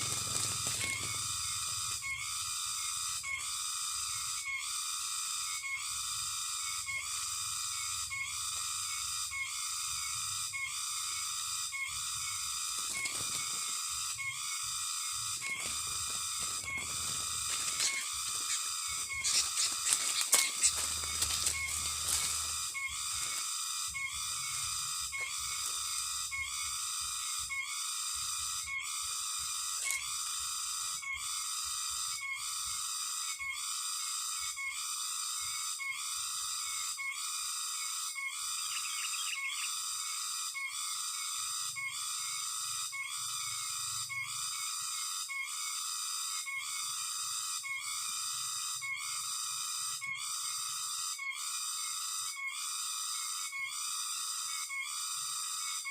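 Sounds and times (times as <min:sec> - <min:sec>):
bulbul lure call whistling: 0:00.0 - 0:04.7, 0:05.4 - 0:27.8, 0:37.8 - 0:44.7, 0:47.6 - 0:55.9.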